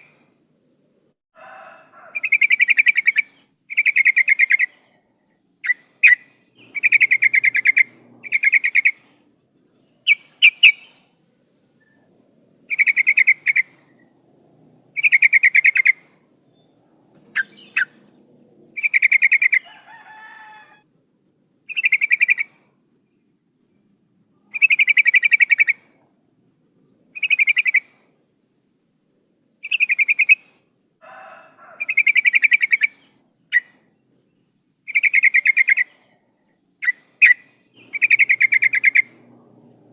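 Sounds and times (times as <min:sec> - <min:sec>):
bulbul pulsed calls: 0:02.1 - 0:09.2, 0:09.8 - 0:16.6, 0:17.2 - 0:19.6, 0:21.7 - 0:22.6, 0:24.5 - 0:25.9, 0:27.2 - 0:28.1, 0:29.6 - 0:30.6, 0:31.8 - 0:33.8, 0:34.9 - 0:36.2, 0:36.8 - 0:39.7.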